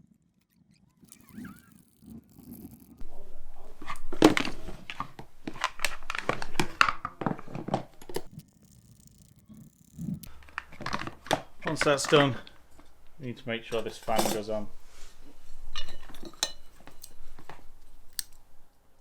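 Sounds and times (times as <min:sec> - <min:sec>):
metal tools clicking and knocking: 0:15.8 - 0:17.2.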